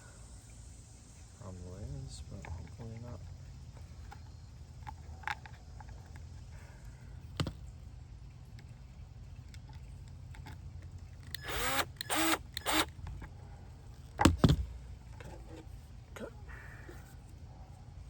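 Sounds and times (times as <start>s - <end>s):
cordless screw gun driving screws: 11.3s - 13.0s.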